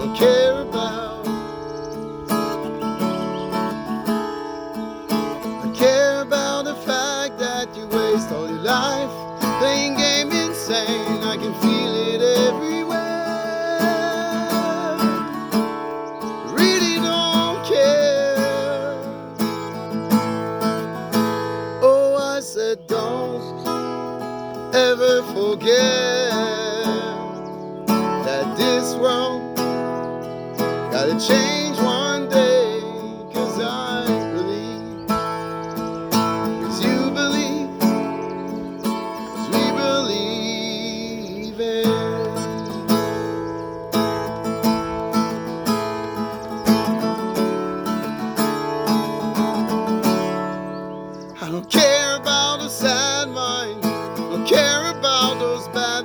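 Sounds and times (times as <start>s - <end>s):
strummed acoustic guitar: 0.0s - 56.0s
person singing: 5.8s - 15.4s, 30.9s - 35.0s, 36.6s - 38.4s, 39.2s - 42.5s.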